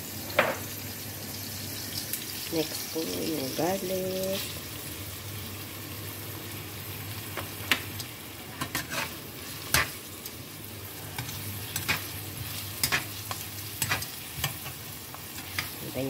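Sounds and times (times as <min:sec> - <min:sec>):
onion sizzling in oil: 0:00.0 - 0:16.0
spatula scraping and tapping pan: 0:08.6 - 0:10.0, 0:11.2 - 0:15.7.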